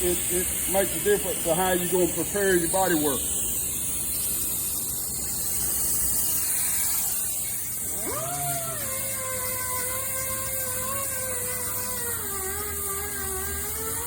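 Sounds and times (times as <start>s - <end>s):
steady hiss: 0.0s - 14.0s
power sander whining: 6.6s - 14.0s.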